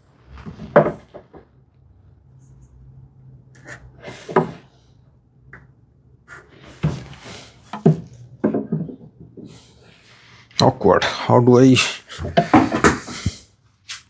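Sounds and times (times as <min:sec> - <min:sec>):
tools knocking on wooden workbench: 0:07.8 - 0:09.5, 0:12.2 - 0:13.2.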